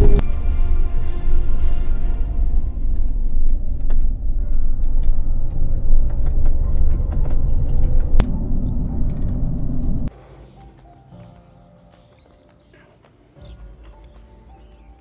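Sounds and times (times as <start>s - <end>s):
vehicle driving rumble: 0.0s - 1.0s, 1.7s - 10.1s.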